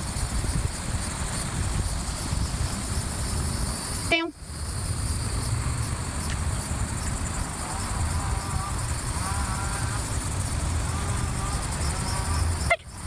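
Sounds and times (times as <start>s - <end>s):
high insect drone: 0.0s - 13.0s
wind rumbling on microphone: 0.0s - 13.0s
faint wavering calls: 7.2s - 13.0s.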